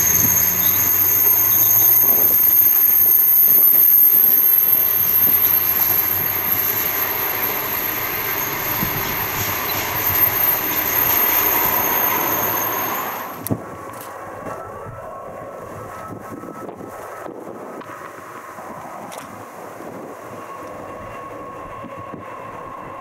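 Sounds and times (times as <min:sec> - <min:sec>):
high-pitched wheel squeal: 0:00.0 - 0:13.5, 0:20.0 - 0:23.0
train wheels rumbling on rails: 0:00.0 - 0:23.0.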